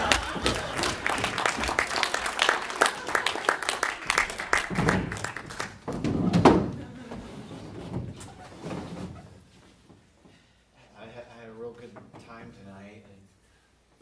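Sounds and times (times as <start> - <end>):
crowd shouting: 0.0 - 1.1
audience applauding: 0.0 - 6.0.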